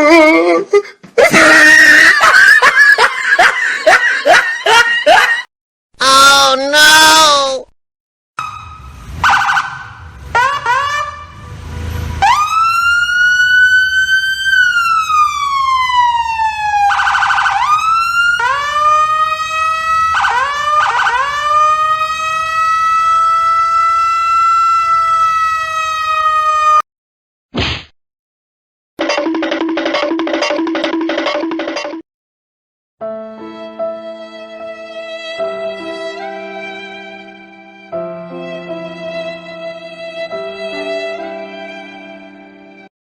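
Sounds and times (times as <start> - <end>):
emergency siren: 8.4 - 26.8.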